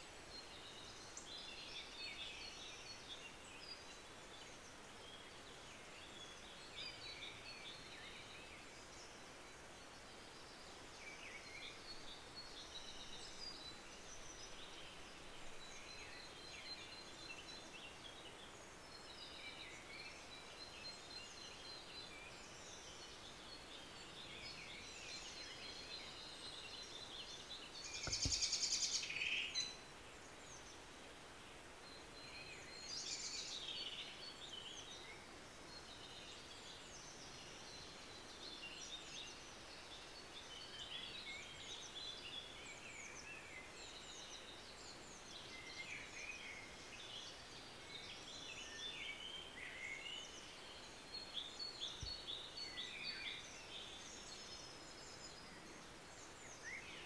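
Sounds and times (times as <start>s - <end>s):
birds chirping and singing: 11.1s - 30.8s.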